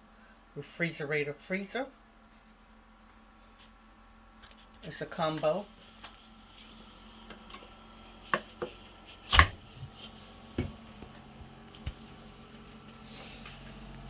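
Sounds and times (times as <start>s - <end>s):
knocks and clicks of fridge: 9.4s - 9.7s.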